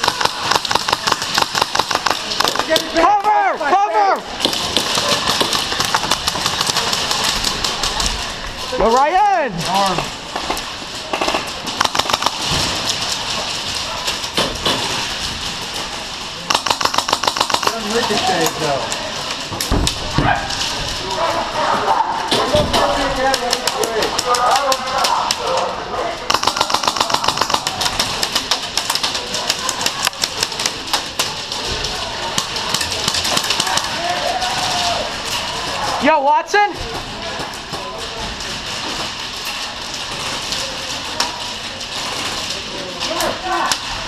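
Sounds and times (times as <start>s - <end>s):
airsoft gun bursts: 0.0s - 2.9s, 4.4s - 8.1s, 11.1s - 12.8s, 16.4s - 18.4s, 26.3s - 31.4s.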